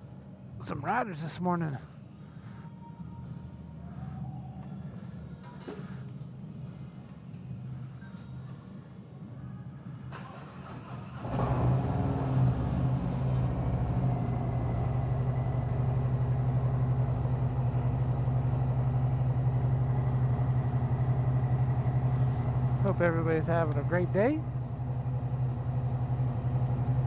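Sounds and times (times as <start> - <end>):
motorcycle engine starting and idling: 10.1 - 27.0.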